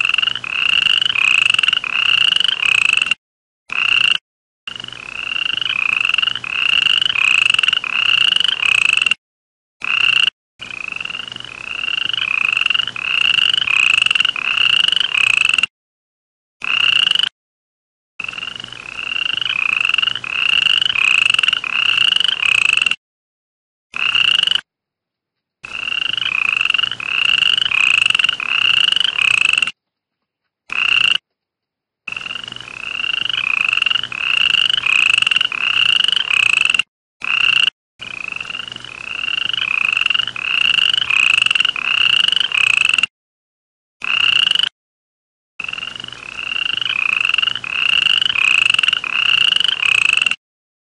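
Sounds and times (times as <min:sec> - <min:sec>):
toad croaking: 0:00.0 - 0:09.2, 0:09.8 - 0:15.7, 0:16.6 - 0:17.3, 0:18.2 - 0:23.0, 0:23.9 - 0:24.7, 0:25.6 - 0:29.8, 0:30.6 - 0:31.4, 0:32.1 - 0:43.1, 0:44.0 - 0:44.7, 0:45.6 - 0:50.4.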